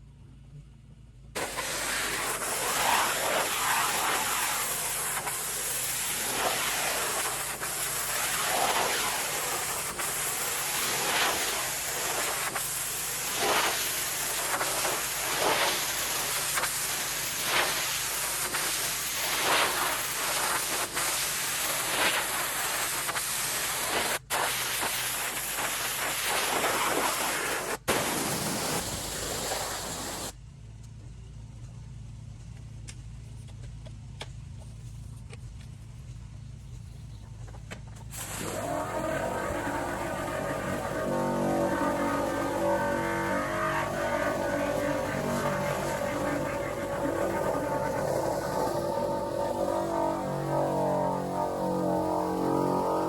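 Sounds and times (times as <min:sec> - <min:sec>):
pressure washer spray hissing: 0:01.4 - 0:30.3, 0:38.1 - 0:53.0
low engine hum: 0:29.8 - 0:53.0.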